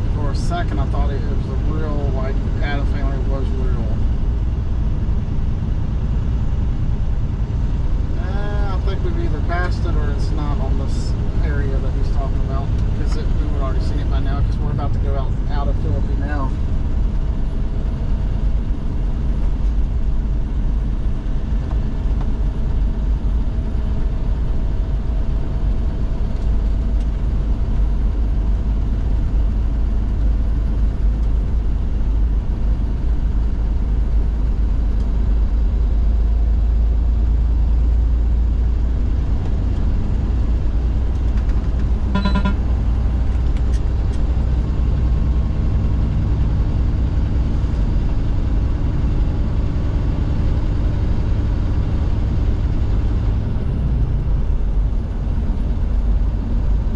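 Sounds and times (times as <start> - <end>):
truck engine and road rumble: 0.0 - 56.9
short pitched tone: 42.1 - 42.8.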